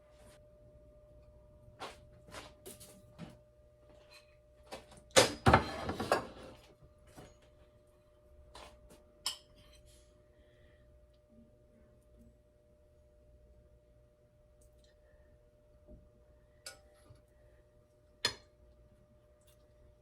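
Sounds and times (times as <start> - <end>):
dishes knocking and clinking: 5.2 - 6.5
dishes clattering: 5.3 - 6.6.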